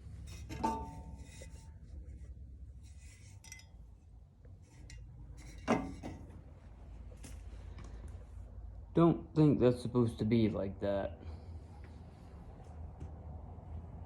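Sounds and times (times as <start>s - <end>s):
metal rattling and rubbing: 0.0s - 3.7s
metallic clanks: 0.2s - 1.7s, 4.8s - 6.3s.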